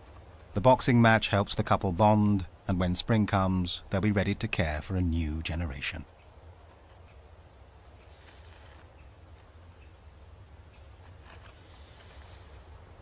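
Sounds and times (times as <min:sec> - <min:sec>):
faint outdoor ambience: 0:00.0 - 0:13.0
small bird calling: 0:06.0 - 0:13.0.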